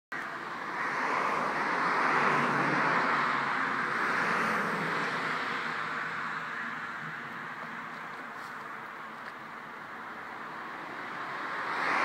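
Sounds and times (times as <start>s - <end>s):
vehicle passing by: 0.8s - 6.7s.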